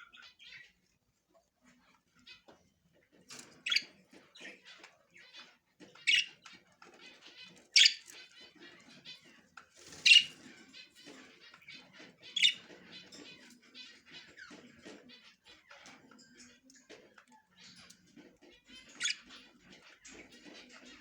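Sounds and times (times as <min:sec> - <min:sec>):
budgerigars chirping and chattering: 0:00.0 - 0:21.0
harsh bird squawks: 0:09.9 - 0:10.4.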